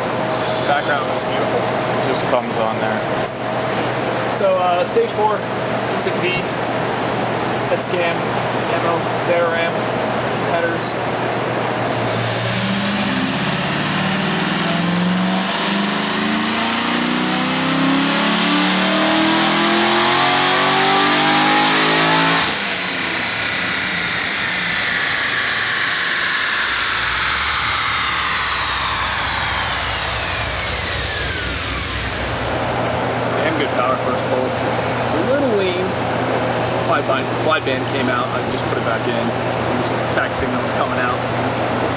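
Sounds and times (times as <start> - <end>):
dyno rollers coasting down whine: 0.0 - 41.9
car engine revving at full throttle: 11.0 - 37.1.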